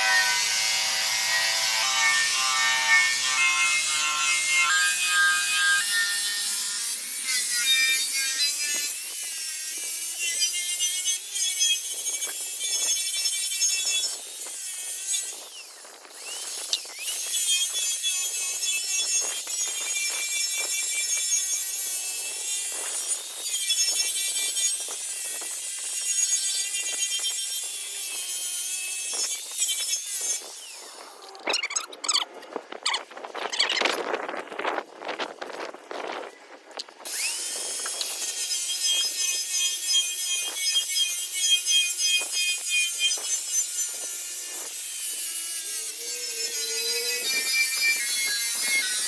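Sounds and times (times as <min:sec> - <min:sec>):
rotary buffer squealing on metal: 0:30.7 - 0:33.9, 0:45.0 - 0:49.0.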